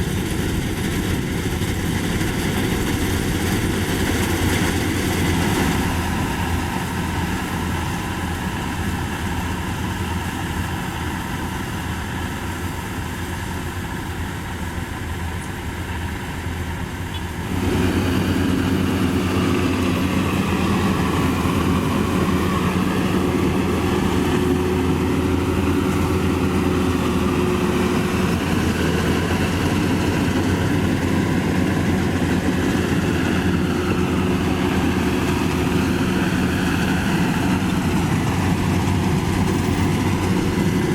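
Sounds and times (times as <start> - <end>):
combine harvester engine droning: 0.0 - 40.9.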